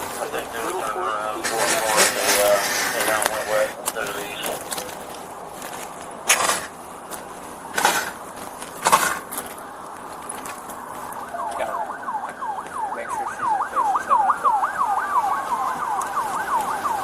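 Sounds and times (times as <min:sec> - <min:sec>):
siren wailing: 0:00.0 - 0:05.0, 0:09.1 - 0:17.0
short bursts of noise: 0:00.0 - 0:05.2
siren yelping: 0:07.7 - 0:17.0.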